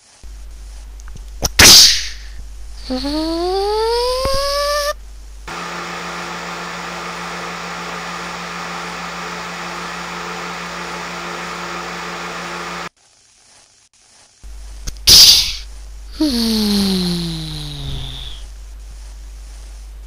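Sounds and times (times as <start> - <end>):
motor-like hum: 0.0 - 13.0, 14.4 - 20.0
rising pitched whine: 0.2 - 12.9, 16.0 - 18.6.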